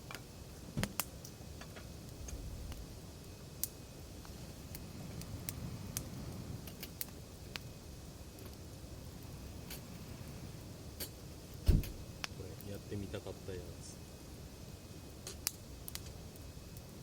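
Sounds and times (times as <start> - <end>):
firewood popping and snapping: 0.0 - 9.9, 10.9 - 12.8, 15.1 - 17.0
flames rushing: 0.0 - 17.0.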